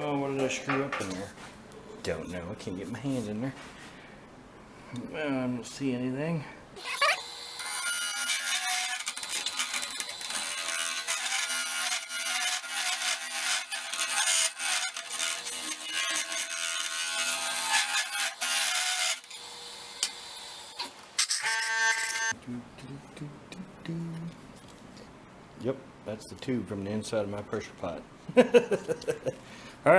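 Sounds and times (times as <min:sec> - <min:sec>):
tool scraping wood on lathe: 0:06.8 - 0:19.3.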